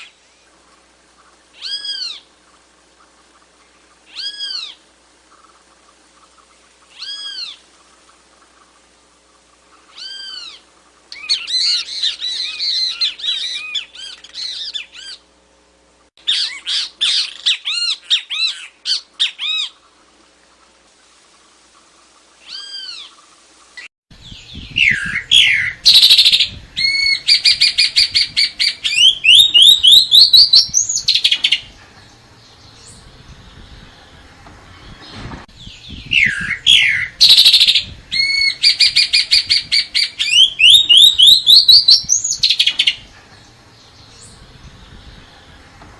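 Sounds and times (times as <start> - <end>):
bird sweeping trills: 1.2 - 2.3, 6.2 - 8.7, 9.7 - 15.2, 24.2 - 45.8.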